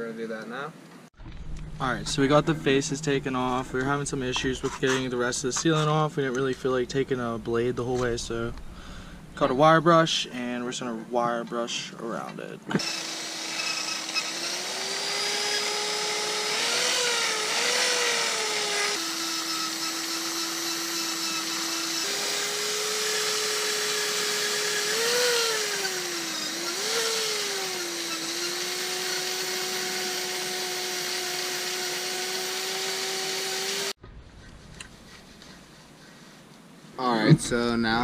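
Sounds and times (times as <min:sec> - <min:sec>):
power tool wire brush whine: 0:12.8 - 0:34.0.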